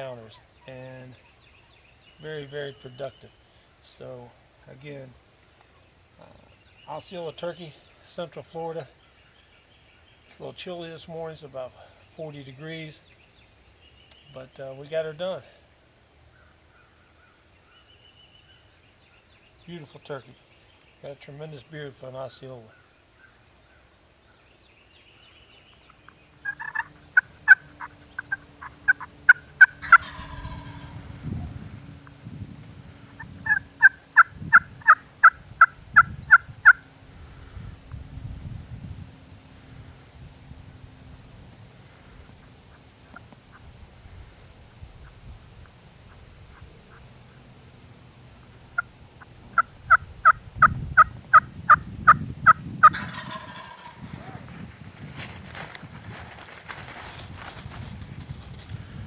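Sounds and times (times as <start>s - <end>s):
turkey yelping: 25.9s - 31.6s, 33.1s - 36.8s, 48.7s - 54.5s.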